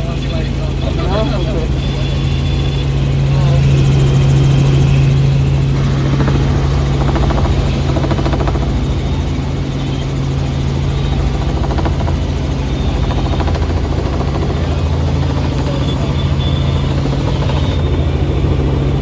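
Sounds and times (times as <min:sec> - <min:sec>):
helicopter engine and rotor drone: 0:00.0 - 0:19.0.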